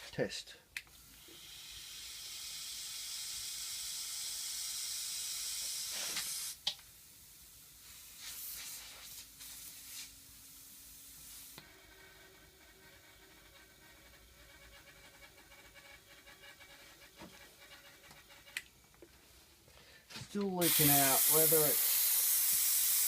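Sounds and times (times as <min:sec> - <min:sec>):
compressed air hissing: 0:01.0 - 0:06.6, 0:07.2 - 0:11.6, 0:20.6 - 0:23.0.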